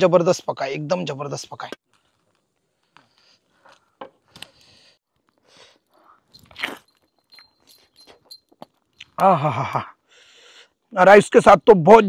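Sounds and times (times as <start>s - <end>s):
man chewing food: 2.8s - 9.2s.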